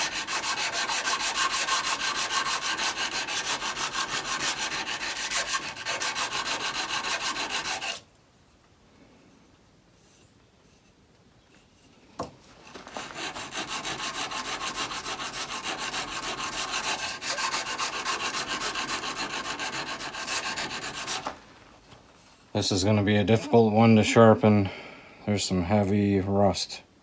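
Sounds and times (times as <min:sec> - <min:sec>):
chisel rubbing on sharpening stone: 0:00.0 - 0:08.0, 0:13.0 - 0:21.3.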